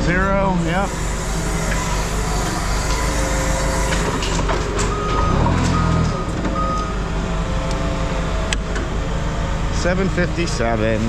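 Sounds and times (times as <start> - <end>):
heavy vehicle engine running: 0.0 - 11.0
backup alarm beeping: 4.8 - 7.3.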